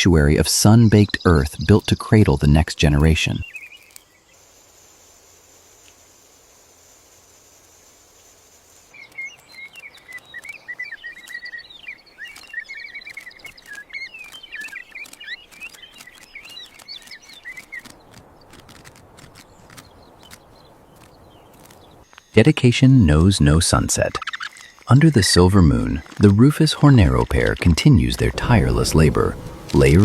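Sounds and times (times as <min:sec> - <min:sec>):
insect trill: 0:03.4 - 0:17.6, 0:23.8 - 0:30.0
birds chattering calls: 0:08.8 - 0:22.4, 0:23.8 - 0:30.0
scattered clicks: 0:12.2 - 0:20.4, 0:24.2 - 0:28.2.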